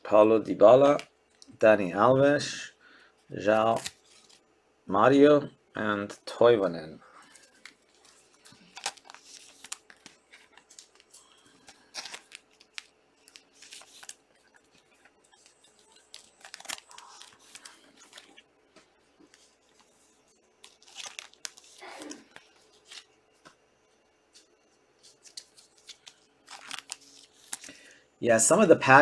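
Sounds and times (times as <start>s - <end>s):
wrappers crinkling and tearing: 3.6s - 4.4s, 7.2s - 18.5s, 20.6s - 23.1s, 25.1s - 27.8s
cards sliding: 7.3s - 18.4s.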